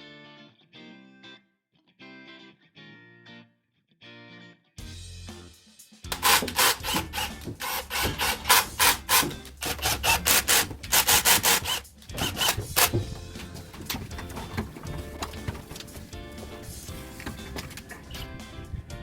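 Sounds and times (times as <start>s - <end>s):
rapid back-and-forth scraping: 6.1s - 18.4s.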